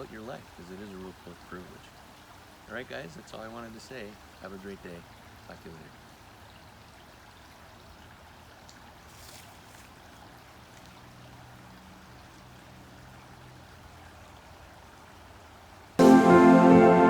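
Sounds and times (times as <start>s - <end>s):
stream running water: 0.0s - 17.0s.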